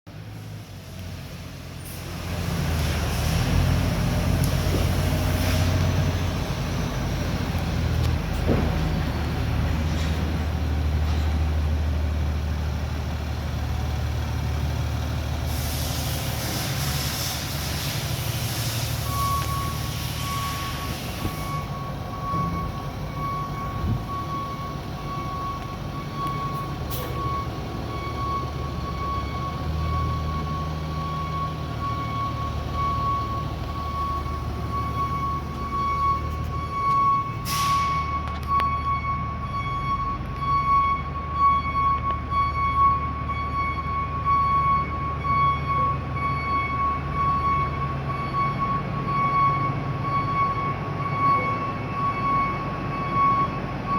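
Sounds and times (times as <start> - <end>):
truck diesel engine running: 0.1 - 53.9
hiss: 15.4 - 21.6.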